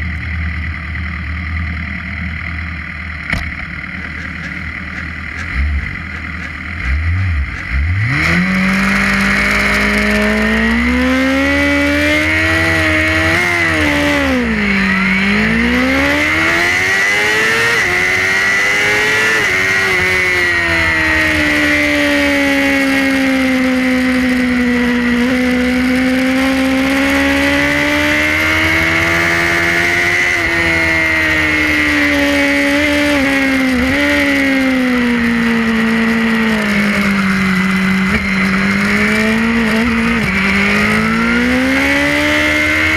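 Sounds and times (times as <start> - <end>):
race bike engine revving: 3.2 - 42.9.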